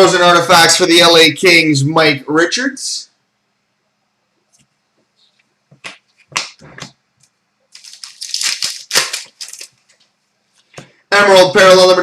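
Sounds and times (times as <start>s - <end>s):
card wrapper crinkling: 7.7s - 10.1s.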